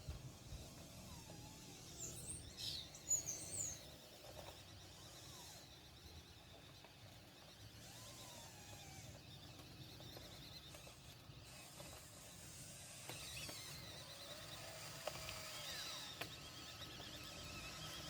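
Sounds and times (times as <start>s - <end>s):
small electric motors whirring: 0.0s - 18.0s
sharp clicks: 12.9s - 17.2s.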